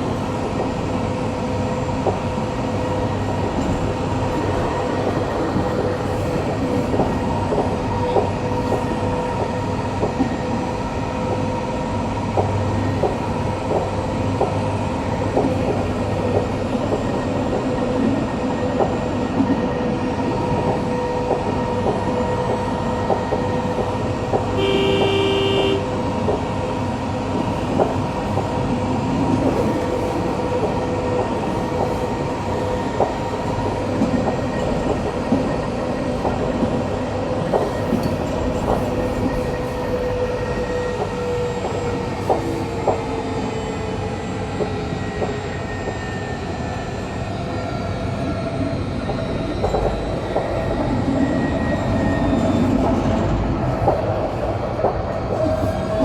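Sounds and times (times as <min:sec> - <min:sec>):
tram rumbling with motor whine: 0:00.0 - 0:56.0
short horn-like tone: 0:24.6 - 0:25.9.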